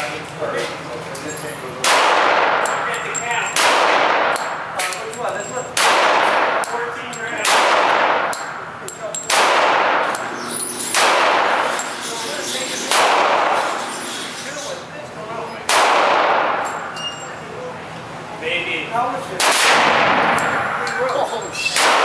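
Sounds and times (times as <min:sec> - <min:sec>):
gunshots echoing: 0:01.8 - 0:03.0, 0:03.6 - 0:04.8, 0:05.8 - 0:06.8, 0:07.4 - 0:08.7, 0:09.3 - 0:10.3, 0:10.9 - 0:11.8, 0:12.9 - 0:13.8, 0:15.7 - 0:16.8, 0:19.4 - 0:20.9, 0:21.8 - 0:22.0.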